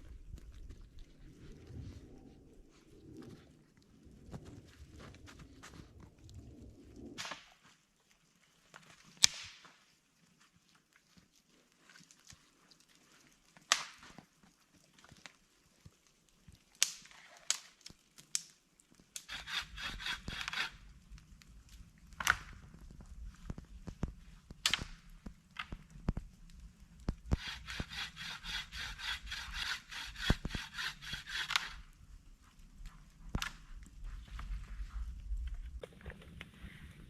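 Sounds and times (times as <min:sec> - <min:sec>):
hand tool rasping on wood: 0:19.3 - 0:20.8, 0:27.3 - 0:31.8.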